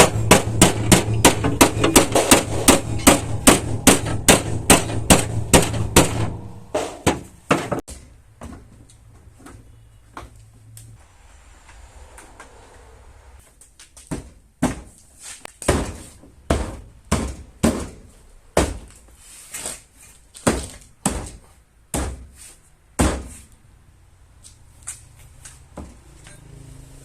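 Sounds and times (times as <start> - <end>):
hammer blows on sheet metal: 0.0 - 7.9.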